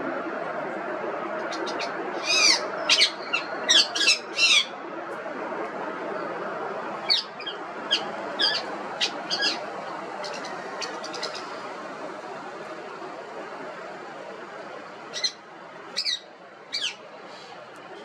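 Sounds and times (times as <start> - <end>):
low background noise: 0.0 - 18.0
parrot calling: 1.6 - 4.7, 7.0 - 11.6, 16.0 - 17.0.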